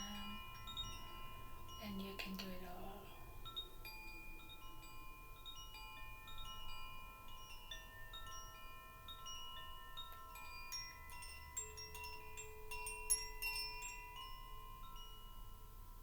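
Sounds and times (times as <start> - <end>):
chimes ringing softly: 0.0 - 16.0.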